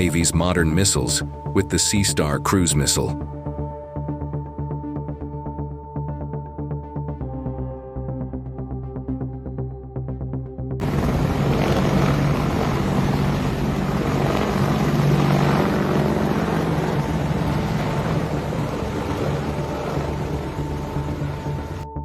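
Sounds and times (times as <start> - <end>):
music: 0.0 - 22.0
aircraft rushing noise: 10.8 - 21.8
low engine hum: 10.8 - 21.8.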